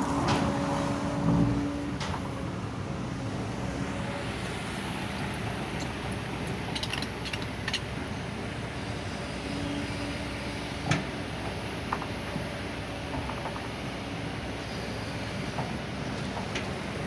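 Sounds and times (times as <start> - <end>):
excavator diesel engine running: 0.0 - 17.0
metallic clicks and clanks: 6.7 - 7.8.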